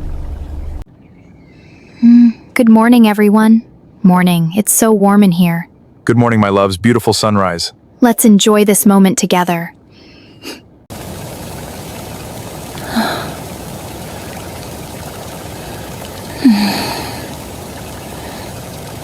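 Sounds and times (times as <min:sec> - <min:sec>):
person breathing: 0:09.9 - 0:10.5, 0:12.8 - 0:13.4, 0:16.3 - 0:17.4
water hissing: 0:10.9 - 0:19.0.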